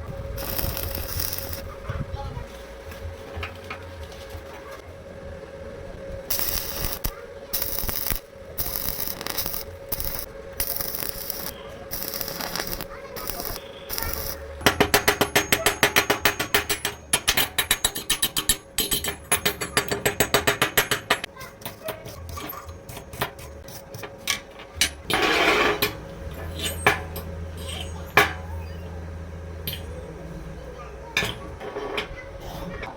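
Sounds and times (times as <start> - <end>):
harsh metalworking noise: 0.0 - 32.9
rapid metallic strikes: 6.3 - 23.6.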